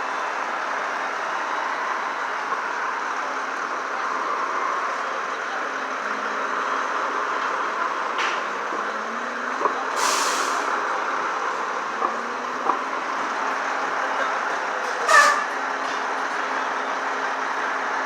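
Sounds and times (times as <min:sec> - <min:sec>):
heavy truck engines: 0:00.0 - 0:18.0
traffic noise: 0:00.0 - 0:18.0
short hiss: 0:10.0 - 0:10.7.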